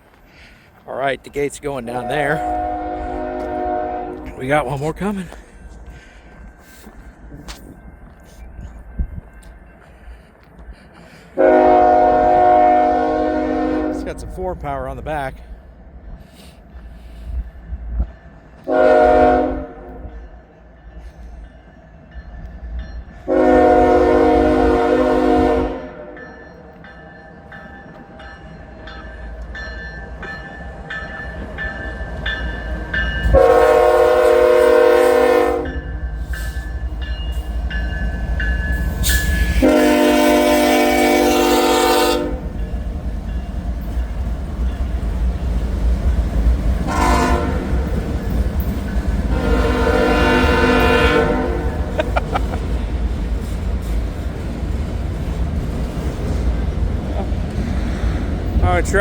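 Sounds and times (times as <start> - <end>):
train rumble: 0.0 - 59.0
locomotive air horn blasts: 2.0 - 4.4, 11.4 - 14.3, 18.6 - 20.1, 23.3 - 26.2, 33.3 - 35.9, 39.1 - 42.5, 46.8 - 48.0, 49.3 - 52.0.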